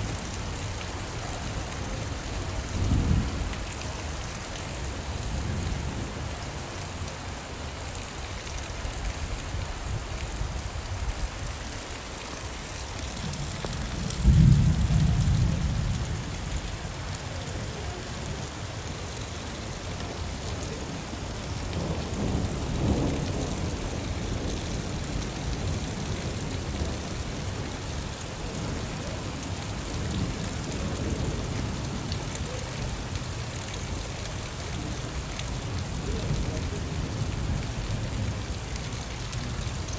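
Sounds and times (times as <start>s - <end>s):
steady rain: 0.0s - 39.9s
thunder clap and rumble: 13.2s - 16.3s, 21.7s - 27.7s.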